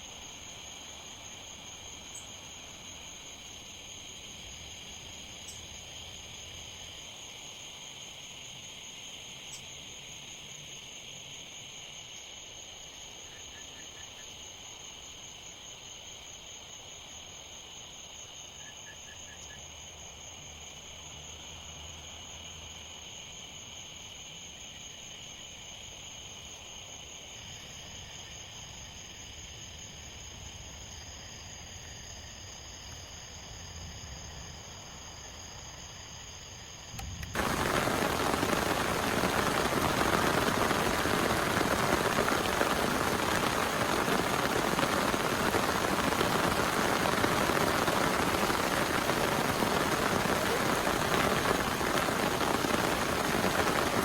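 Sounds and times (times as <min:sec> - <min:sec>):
insects chirring: 0:00.0 - 0:54.0
heavy rain pouring: 0:37.0 - 0:54.0.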